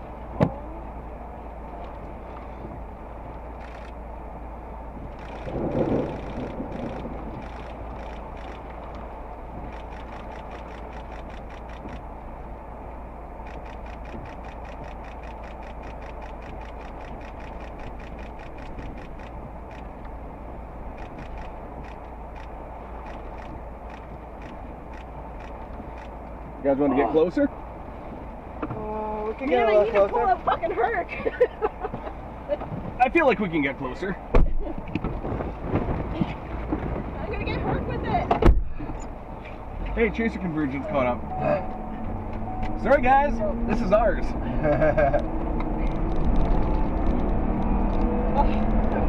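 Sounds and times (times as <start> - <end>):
vehicle cabin rumble: 0.0 - 49.0
rapid light ticks: 3.3 - 4.0, 5.1 - 12.2, 13.4 - 20.2, 20.9 - 26.5.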